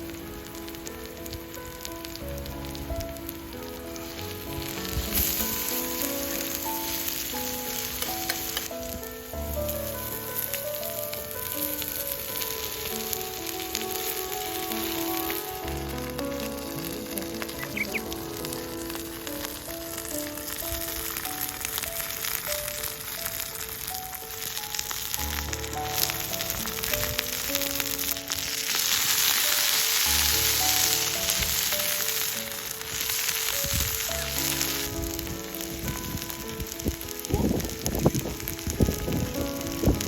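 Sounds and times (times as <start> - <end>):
food sizzling in a pan: 0.0 - 40.0.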